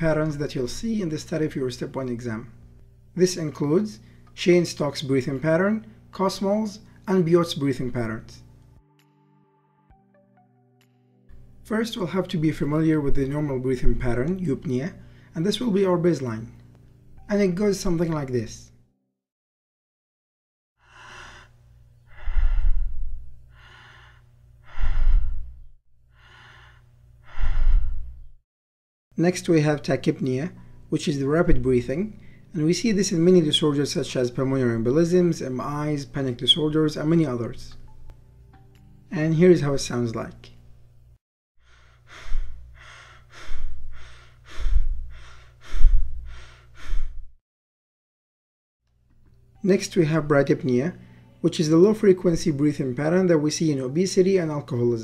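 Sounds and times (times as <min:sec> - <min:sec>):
person breathing slowly: 0:20.8 - 0:28.4, 0:41.6 - 0:47.4.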